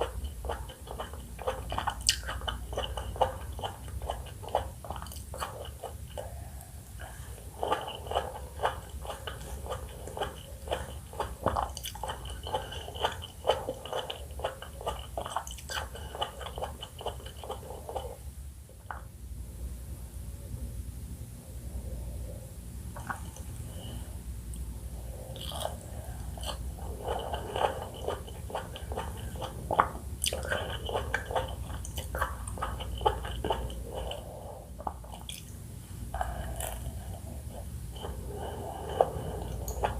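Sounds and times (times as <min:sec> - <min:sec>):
person chewing: 0:00.0 - 0:18.2, 0:23.0 - 0:39.9
steady low hum: 0:00.0 - 0:39.9
wet mouth click: 0:35.1 - 0:35.6.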